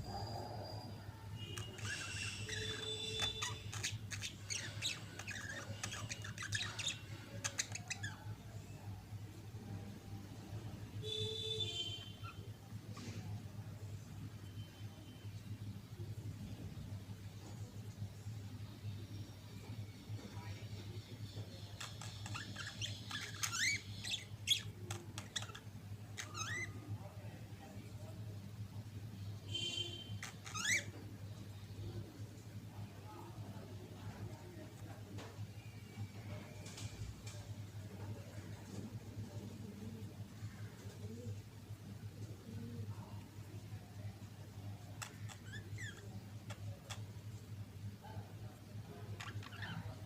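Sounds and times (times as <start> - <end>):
budgerigars chattering: 1.6 - 8.2.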